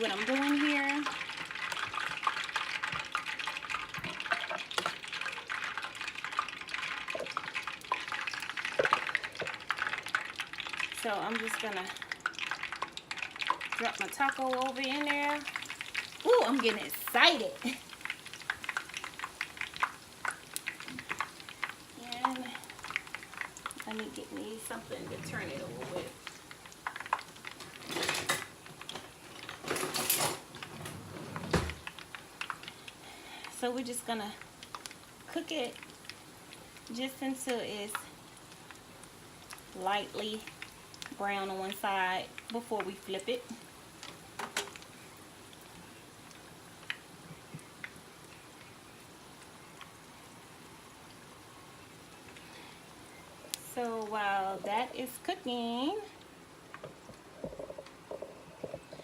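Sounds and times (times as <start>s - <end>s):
oil sizzling in a pan: 0.0s - 30.9s, 31.5s - 59.0s
kitchen utensils clattering: 27.6s - 28.5s, 29.4s - 31.8s.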